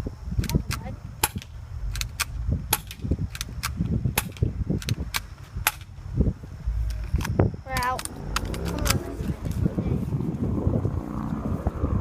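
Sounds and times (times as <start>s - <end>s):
airsoft gun shots: 5.1s - 5.9s.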